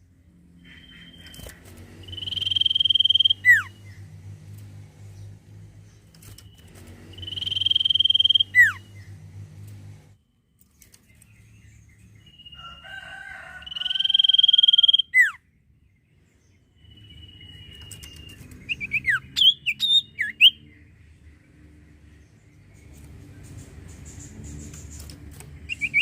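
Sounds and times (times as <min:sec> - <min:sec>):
songbird whistling: 0:00.7 - 0:03.7, 0:06.4 - 0:09.1, 0:13.6 - 0:15.4, 0:16.8 - 0:20.6, 0:25.7 - 0:26.0.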